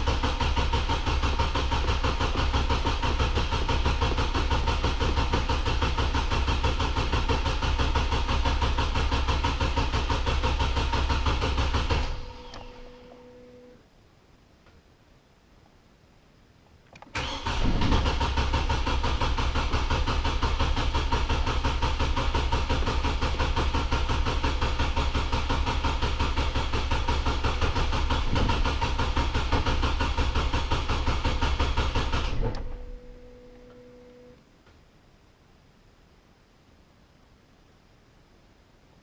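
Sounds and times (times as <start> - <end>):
truck engine cranking: 17.0 - 33.2.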